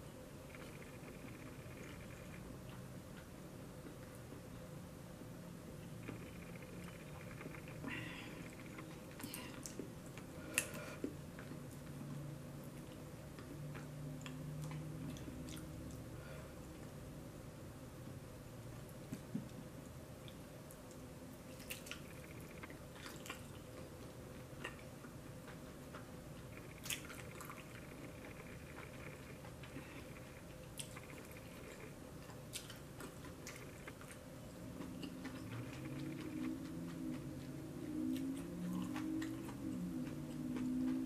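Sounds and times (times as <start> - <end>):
steady hum: 0.0 - 41.0
person chewing: 20.2 - 41.0.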